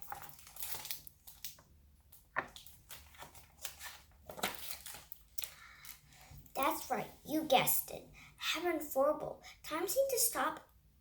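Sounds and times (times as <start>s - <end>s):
book pages rustling: 0.0s - 7.0s.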